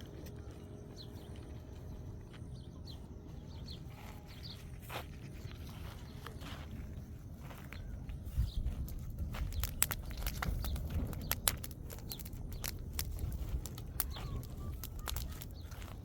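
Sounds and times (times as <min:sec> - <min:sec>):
faint bird chirps: 0:00.0 - 0:16.0
sharp clicks and light knocks: 0:08.8 - 0:16.0.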